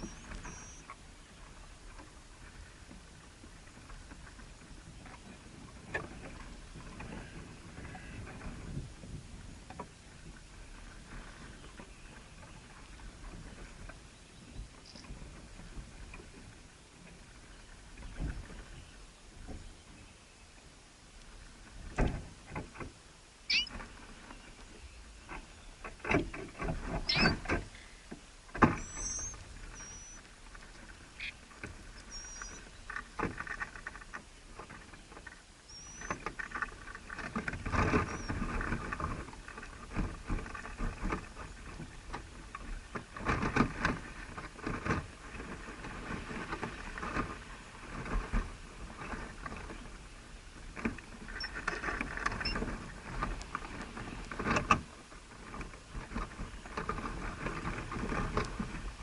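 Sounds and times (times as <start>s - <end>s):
faint high bird chirps: 0.0s - 0.9s, 23.5s - 23.8s, 27.1s - 27.4s, 28.8s - 30.2s, 32.0s - 32.7s, 35.7s - 36.1s.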